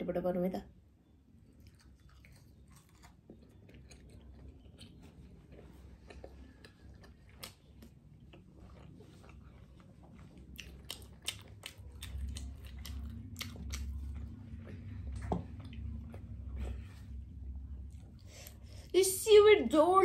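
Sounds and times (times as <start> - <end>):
chewing food with wet clicks: 1.4 - 16.6
low rumble: 8.3 - 20.0.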